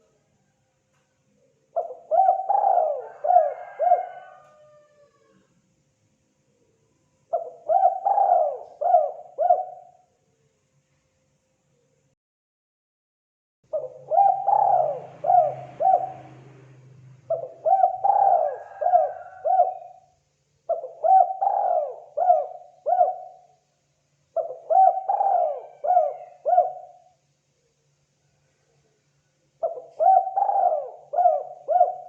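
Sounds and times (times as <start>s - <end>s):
dove cooing: 1.7s - 5.5s, 7.3s - 10.0s, 13.7s - 20.1s, 20.7s - 23.6s, 24.4s - 27.2s, 29.6s - 32.0s.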